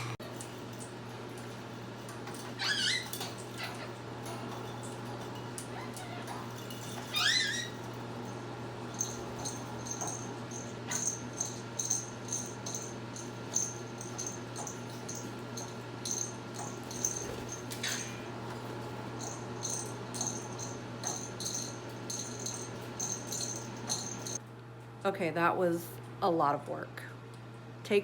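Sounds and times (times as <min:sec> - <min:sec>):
parrots chirping: 0:02.2 - 0:04.0, 0:05.6 - 0:08.0, 0:08.8 - 0:15.3, 0:16.1 - 0:18.3
steady low hum: 0:03.1 - 0:28.0.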